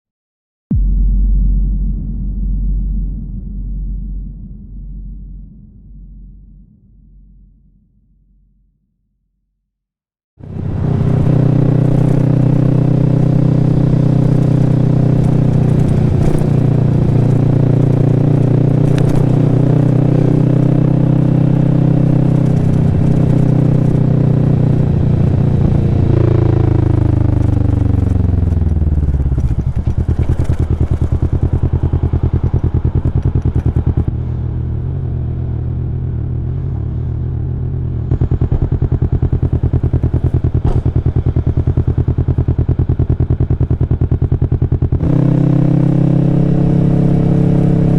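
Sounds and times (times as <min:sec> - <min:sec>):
motorcycle engine running: 0:10.4 - 0:47.9.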